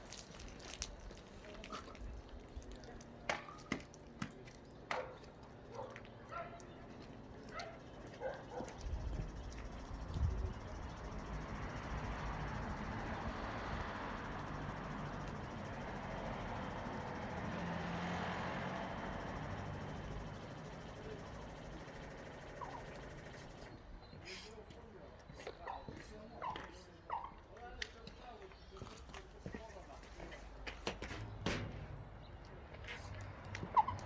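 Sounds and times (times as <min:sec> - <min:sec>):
dog barking and yipping: 0:04.9 - 0:06.7, 0:07.5 - 0:08.8.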